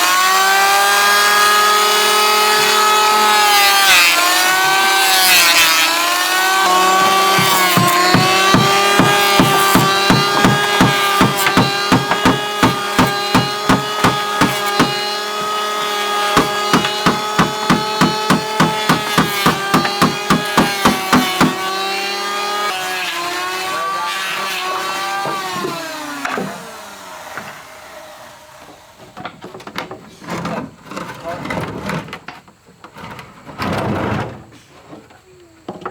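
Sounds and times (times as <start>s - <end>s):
power tool motor whining: 0.0s - 29.2s
sharp regular knocks: 6.8s - 15.1s, 16.3s - 21.7s.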